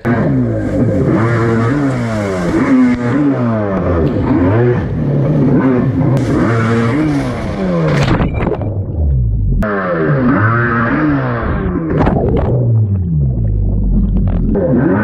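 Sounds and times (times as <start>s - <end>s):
dirt bike engine revving: 0.0s - 8.2s, 9.6s - 12.7s.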